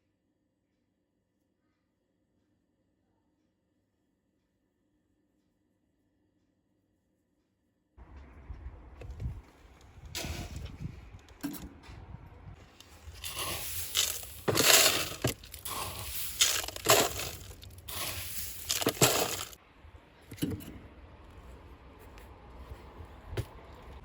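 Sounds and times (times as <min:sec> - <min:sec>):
crunching and crushing noises: 0:12.6 - 0:19.6.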